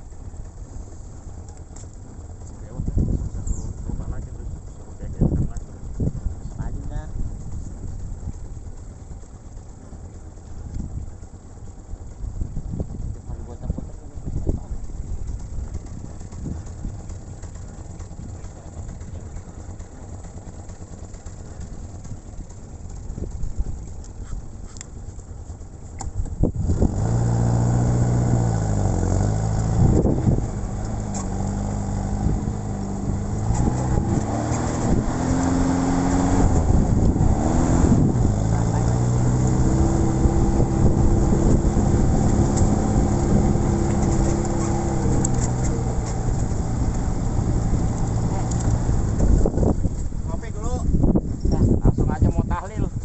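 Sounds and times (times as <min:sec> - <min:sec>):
car engine revving: 0:26.0 - 0:50.7.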